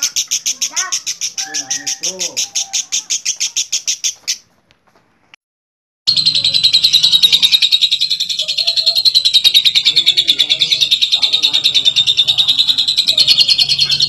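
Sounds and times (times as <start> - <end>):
lovebird shrill trill: 0.0 - 4.4.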